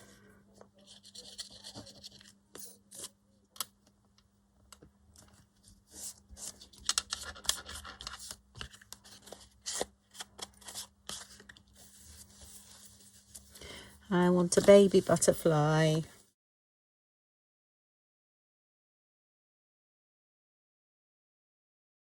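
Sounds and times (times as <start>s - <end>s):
paper rustling and scratching: 0.6s - 3.2s, 5.2s - 16.0s.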